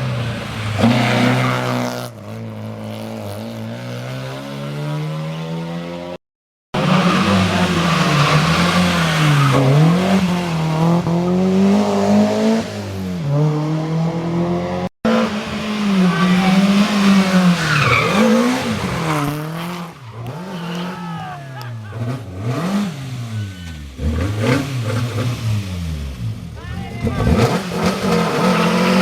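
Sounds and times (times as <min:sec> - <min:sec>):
rally car engines revving: 0:00.0 - 0:06.2, 0:06.8 - 0:29.0
tyres squealing: 0:16.0 - 0:22.2.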